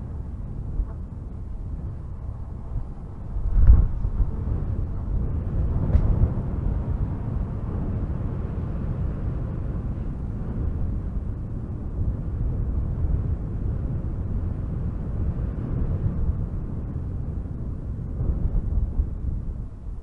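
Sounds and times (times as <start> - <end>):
strong wind through trees: 0.0 - 20.0.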